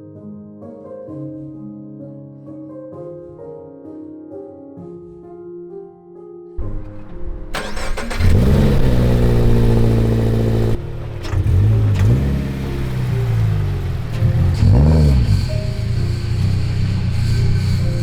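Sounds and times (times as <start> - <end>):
car engine starting and idling: 6.6 - 18.0
engine rev blips: 6.6 - 18.0.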